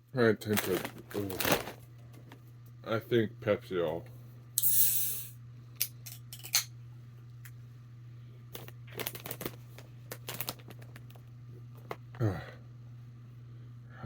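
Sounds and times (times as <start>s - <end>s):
steady low hum: 0.0s - 14.0s
small clicks and handling noises: 8.5s - 12.2s.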